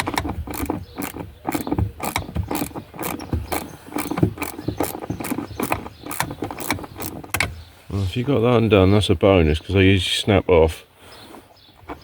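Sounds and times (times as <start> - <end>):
socket ratchet clicking: 0.0 - 7.5.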